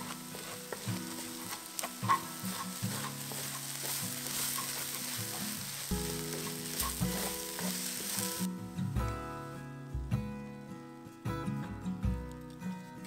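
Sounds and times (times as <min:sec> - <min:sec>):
wooden spatula stirring: 0:00.0 - 0:08.5
food sizzling in a wok: 0:00.0 - 0:09.0
soft background music: 0:00.0 - 0:13.0.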